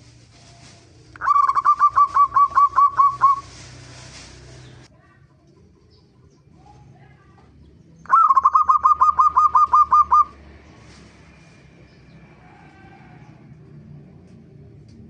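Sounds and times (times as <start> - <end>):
dove calling: 0.0 - 6.9, 7.6 - 11.1.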